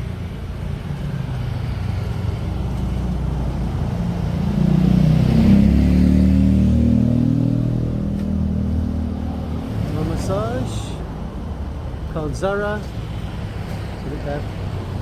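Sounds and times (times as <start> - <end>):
vehicle engine passing by: 1.2 - 10.9.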